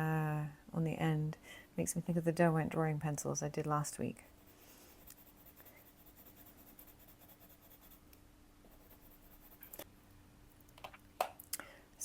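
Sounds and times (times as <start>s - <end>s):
faint steady hum: 0.0s - 12.0s
pencil scratching on paper: 4.2s - 8.0s, 8.7s - 9.8s.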